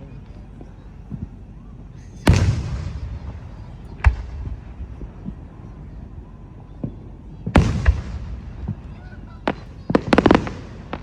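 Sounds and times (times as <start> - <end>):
fireworks bangs: 0.0 - 11.0
small firework pops: 0.3 - 1.5, 2.2 - 5.5, 6.7 - 11.0.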